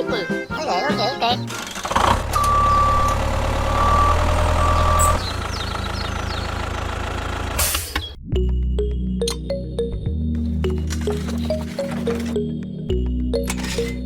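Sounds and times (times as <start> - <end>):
heavy vehicle engine running: 1.5 - 8.1, 10.4 - 12.5
short high beeps: 2.4 - 5.2.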